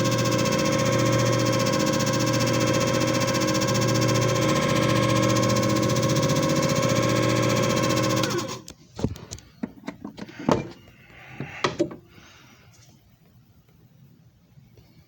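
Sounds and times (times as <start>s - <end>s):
machine motor humming: 0.0s - 8.6s.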